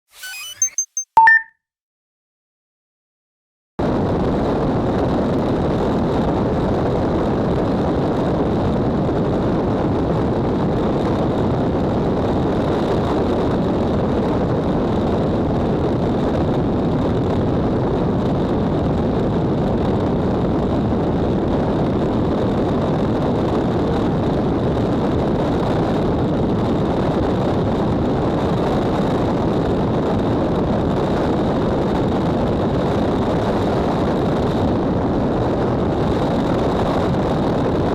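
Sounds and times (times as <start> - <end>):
faint high tone: 0.2 - 1.5.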